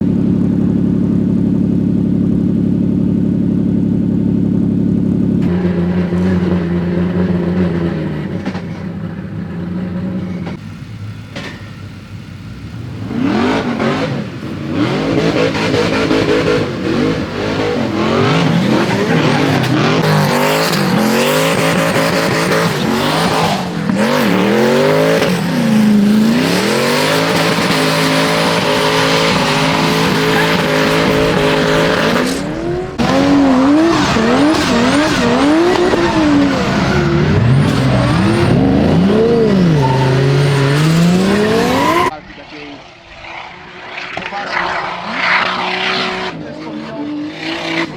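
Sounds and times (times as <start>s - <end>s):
car engines revving: 0.0s - 47.9s
tyre squeal and skidding: 13.3s - 47.9s.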